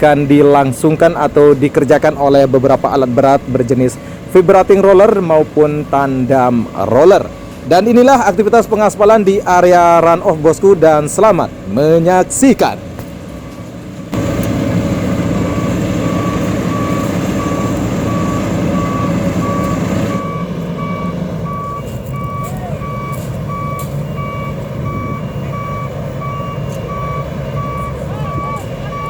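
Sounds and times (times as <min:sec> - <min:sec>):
diesel engine running: 0:00.0 - 0:29.0
reversing alarm beeping: 0:02.0 - 0:09.2, 0:13.3 - 0:29.0.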